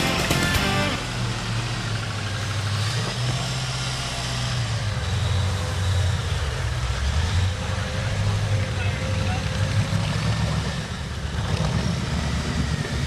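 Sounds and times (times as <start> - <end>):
background music: 0.0 - 1.1
v-eight engine revving: 0.0 - 8.5.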